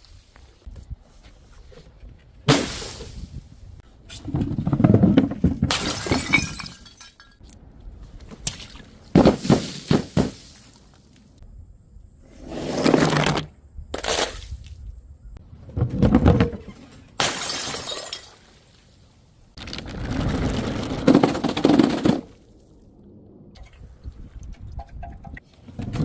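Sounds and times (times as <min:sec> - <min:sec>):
glass bottles shattering: 0:05.7 - 0:07.4, 0:17.2 - 0:18.6
glass fragments tinkling: 0:17.3 - 0:18.6.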